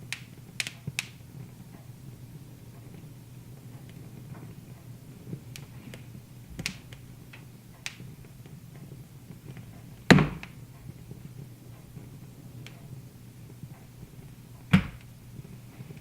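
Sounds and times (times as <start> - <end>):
low steady hum: 0.0 - 16.0
wood fire crackling: 0.0 - 16.0.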